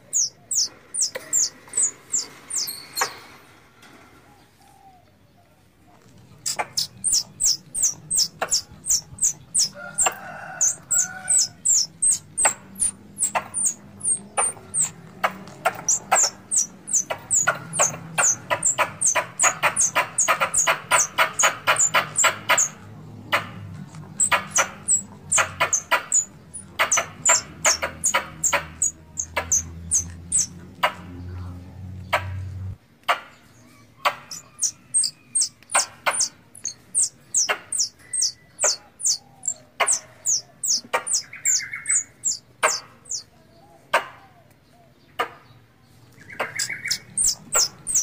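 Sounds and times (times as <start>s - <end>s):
squirrel call chirps: 0.0s - 3.1s, 6.4s - 23.4s, 24.1s - 30.6s, 34.0s - 43.3s, 46.2s - 48.0s.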